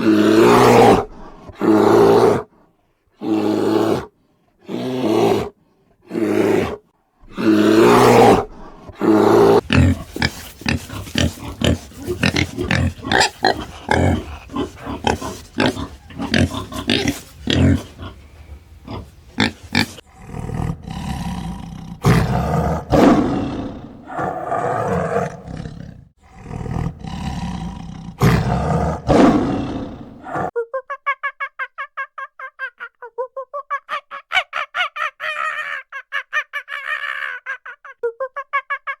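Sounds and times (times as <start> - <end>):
lion roaring and grunting: 6.1 - 30.5.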